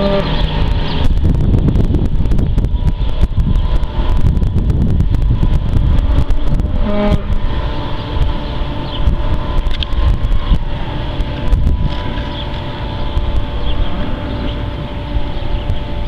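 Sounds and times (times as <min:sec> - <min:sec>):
tractor diesel engine rumbling: 0:00.0 - 0:16.0
wind buffeting microphone: 0:00.0 - 0:16.0.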